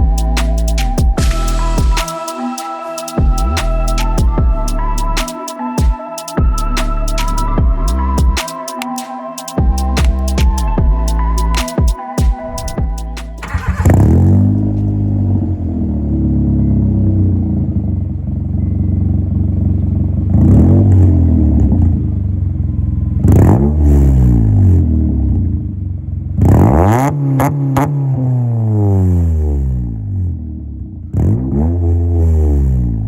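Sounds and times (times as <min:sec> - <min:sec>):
exhaust cracks: 0:13.0 - 0:15.8
car engine revving: 0:13.2 - 0:18.4.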